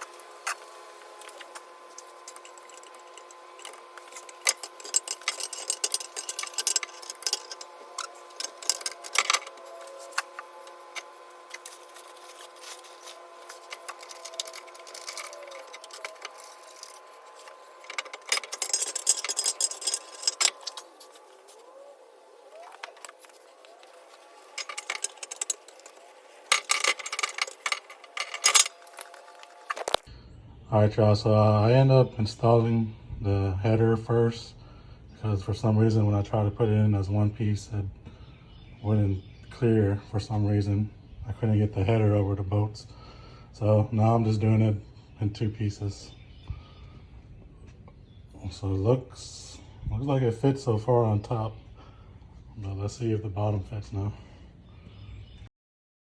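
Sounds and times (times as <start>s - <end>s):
tools and metal parts clinking: 0.0s - 10.4s, 11.0s - 21.3s, 24.4s - 30.1s.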